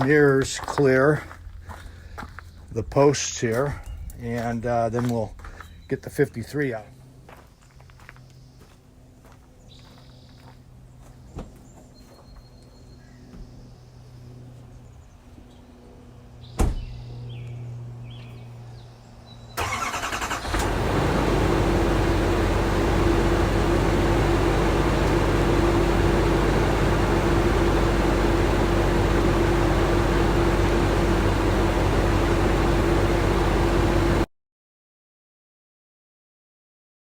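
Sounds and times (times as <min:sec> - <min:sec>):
truck door shutting: 0:16.6 - 0:17.0
pickup engine cranking and idling: 0:19.6 - 0:34.3.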